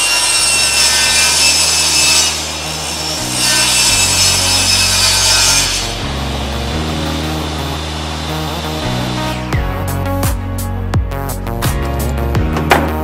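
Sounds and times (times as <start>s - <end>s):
table saw cutting hardboard: 0.0s - 9.6s.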